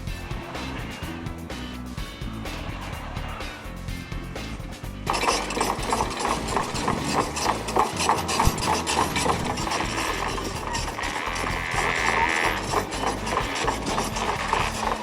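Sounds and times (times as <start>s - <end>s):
low engine rumble: 0.0s - 15.0s
metallic clicks and clanks: 5.0s - 15.0s.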